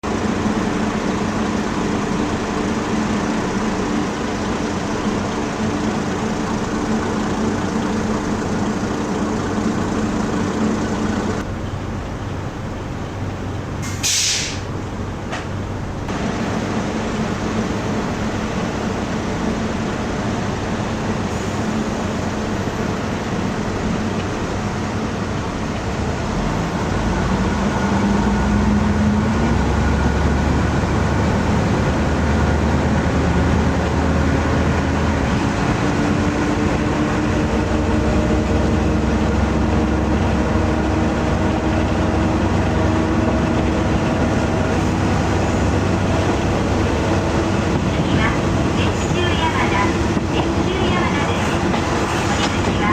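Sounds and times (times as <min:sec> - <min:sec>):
diesel railcar engine running: 0:00.0 - 0:52.9
air hiss: 0:13.8 - 0:14.7.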